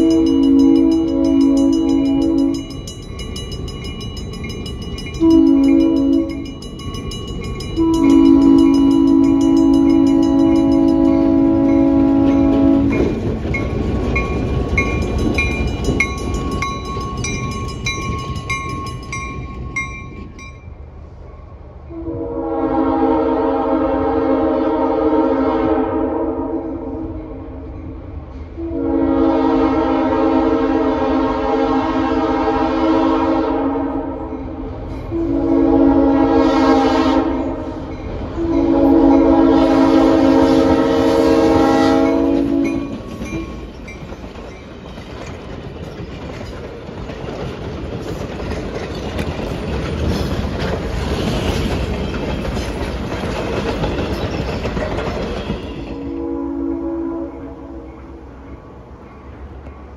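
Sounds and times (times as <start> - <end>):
locomotive air horn blasts: 0.0 - 2.7, 5.2 - 6.4, 7.8 - 13.1, 21.9 - 27.1, 28.6 - 34.2, 35.1 - 37.8, 38.4 - 43.0, 55.5 - 57.9
train coaches clacking on rails: 0.0 - 22.0, 33.9 - 56.4, 57.3 - 59.9.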